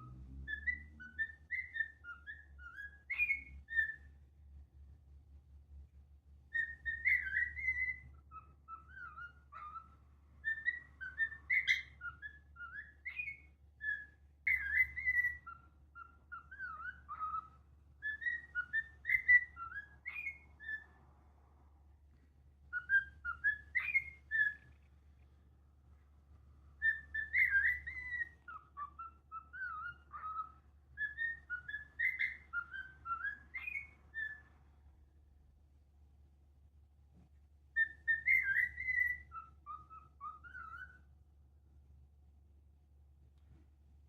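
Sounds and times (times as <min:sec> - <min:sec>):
cockatiel whistling: 0:00.0 - 0:04.2, 0:06.5 - 0:21.0, 0:22.6 - 0:24.8, 0:26.7 - 0:34.6, 0:37.7 - 0:41.1.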